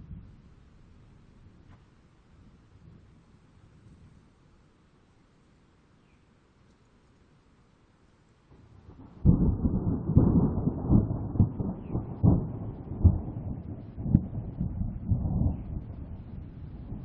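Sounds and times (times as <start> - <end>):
wind buffeting microphone: 9.0 - 17.0.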